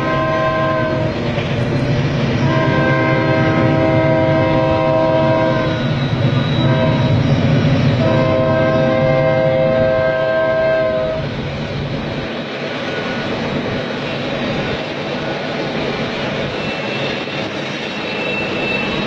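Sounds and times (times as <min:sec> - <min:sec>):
train horn blasts: 0:00.0 - 0:01.2, 0:02.4 - 0:05.9, 0:06.5 - 0:07.3, 0:08.0 - 0:11.3
train rumbling: 0:00.0 - 0:19.0.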